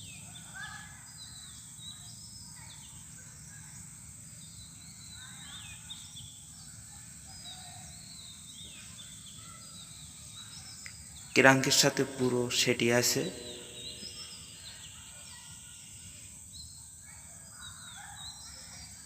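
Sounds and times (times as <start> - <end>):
birds chirping faintly: 0.0 - 19.0
low steady background noise: 0.0 - 19.0.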